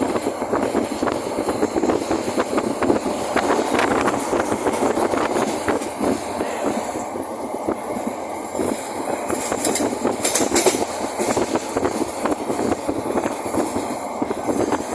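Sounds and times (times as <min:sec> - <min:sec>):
train rumbling along track: 0:00.0 - 0:14.9
wheels clicking and rattling: 0:00.0 - 0:14.9.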